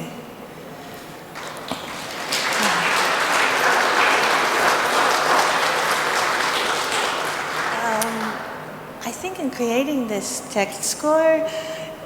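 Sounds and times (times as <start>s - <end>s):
audience applauding: 1.3s - 8.6s.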